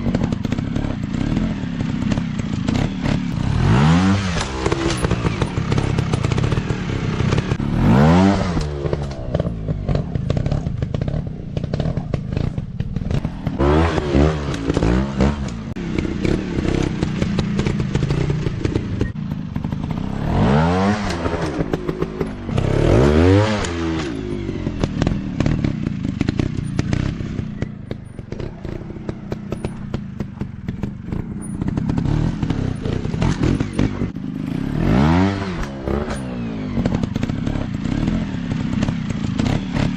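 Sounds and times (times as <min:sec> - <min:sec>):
dirt bike engines revving: 0:00.0 - 0:39.9
knocks and clatter: 0:04.2 - 0:34.2.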